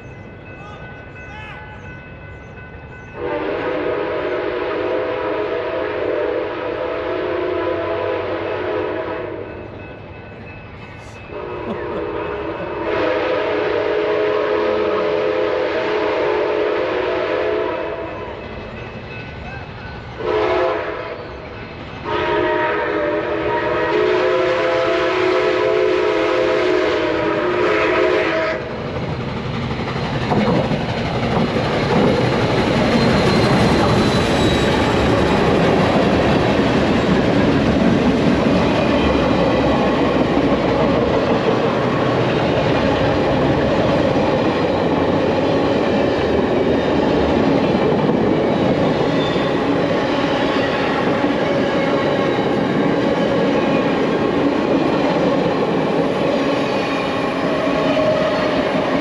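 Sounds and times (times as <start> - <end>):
train wheels rumbling on rails: 0.0 - 59.0
train whistle chord: 3.2 - 9.6, 11.3 - 18.4, 20.2 - 28.8.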